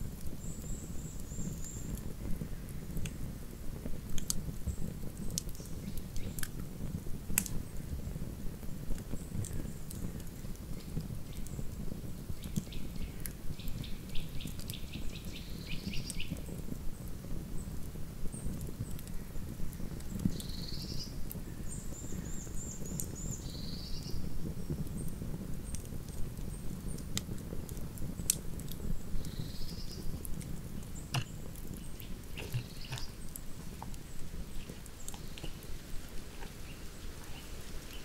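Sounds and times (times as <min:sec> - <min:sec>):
campfire crackling and popping: 0:00.0 - 0:38.0
small birds chirping: 0:00.2 - 0:02.7, 0:04.6 - 0:06.6, 0:09.0 - 0:25.9, 0:28.1 - 0:38.0.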